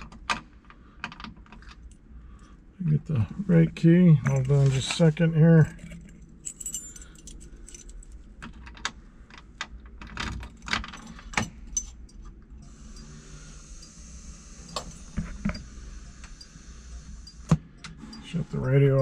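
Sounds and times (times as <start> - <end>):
car keys jangling: 5.6 - 8.2
car radio hiss: 12.8 - 17.5, 18.2 - 19.0.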